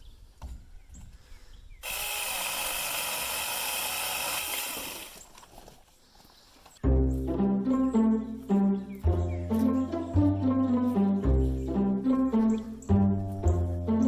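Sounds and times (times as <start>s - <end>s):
electric chainsaw cutting limb: 1.8s - 5.3s.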